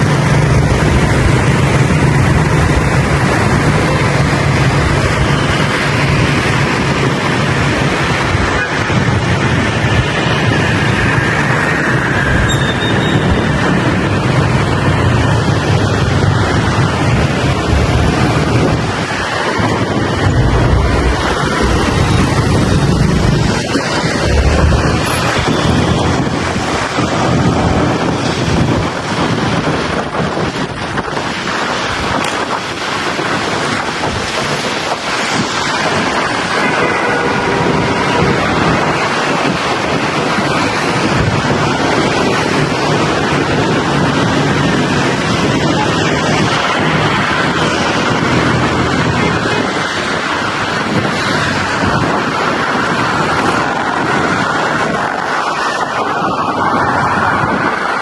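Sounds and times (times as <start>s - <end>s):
motorbike noise: 0.0s - 31.1s
wind rush on microphone: 0.0s - 58.0s
motorbike engine: 15.2s - 27.4s.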